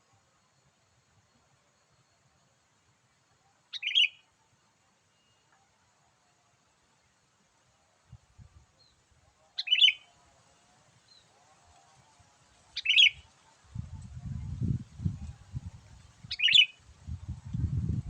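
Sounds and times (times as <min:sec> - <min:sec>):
bulbul calling: 0:03.7 - 0:04.3, 0:09.6 - 0:10.2, 0:12.8 - 0:13.3, 0:16.2 - 0:16.8.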